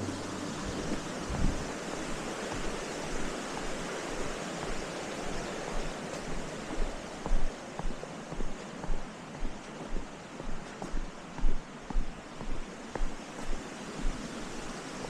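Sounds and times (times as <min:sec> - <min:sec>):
wind noise on microphone: 0:00.0 - 0:05.5
low buffeting thumps: 0:00.7 - 0:03.3, 0:05.7 - 0:14.2.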